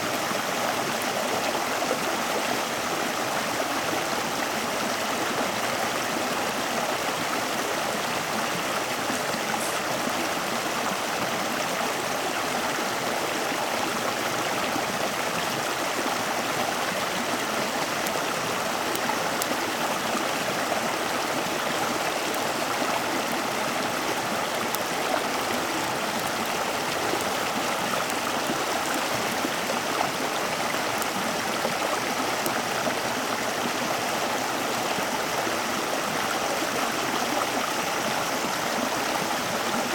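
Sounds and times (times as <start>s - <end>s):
running water rushing: 0.0s - 39.9s
faint clicks: 16.6s - 33.1s.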